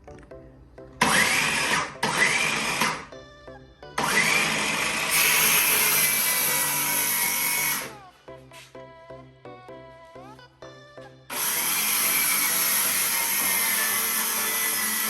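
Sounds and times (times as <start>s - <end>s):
background music: 0.0s - 15.0s
power tool motor whine: 1.0s - 3.1s, 4.0s - 7.9s, 11.3s - 15.0s.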